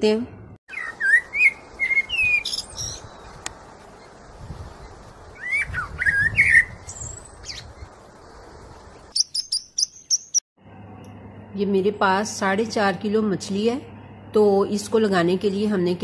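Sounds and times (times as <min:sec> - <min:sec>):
steady background hiss: 0:00.7 - 0:09.2
small birds chirping: 0:00.7 - 0:10.4.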